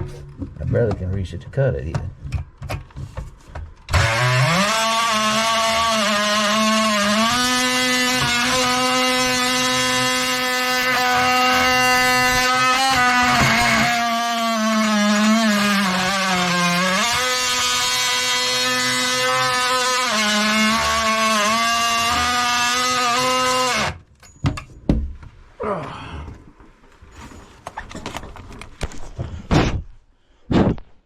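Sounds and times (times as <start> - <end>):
knocks and clatter: 0.0 - 3.8
power saw cutting: 3.9 - 24.0.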